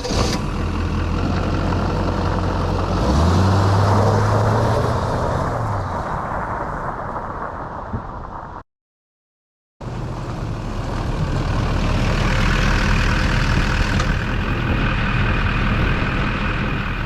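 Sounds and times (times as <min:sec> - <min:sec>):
diesel truck engine running: 0:00.0 - 0:05.8, 0:09.8 - 0:17.0.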